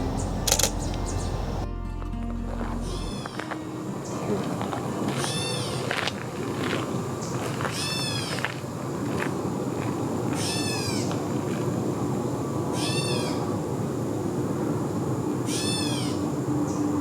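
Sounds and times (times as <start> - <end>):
catbird mew call: 10.4 - 11.1, 12.8 - 13.4.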